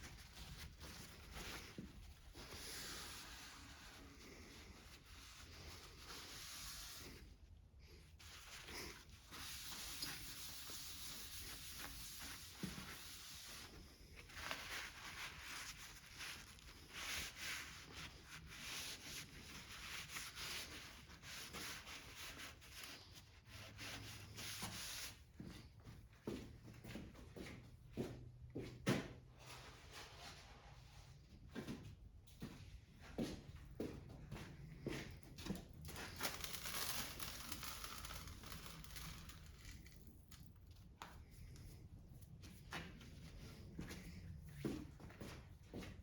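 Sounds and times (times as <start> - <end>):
scraping and rubbing on engine parts: 8.3 - 22.9.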